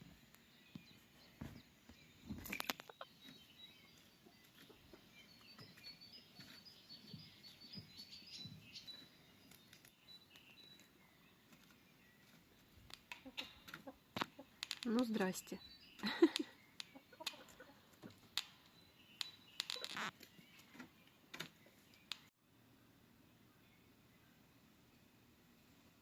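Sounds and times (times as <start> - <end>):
faint birds chirping: 0.0 - 26.0.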